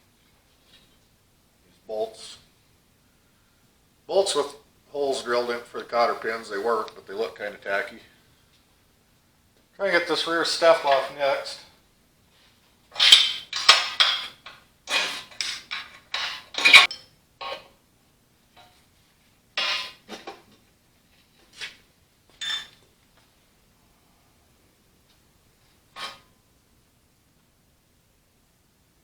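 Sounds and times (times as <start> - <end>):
hand tools clanking on steel: 13.0 - 17.6.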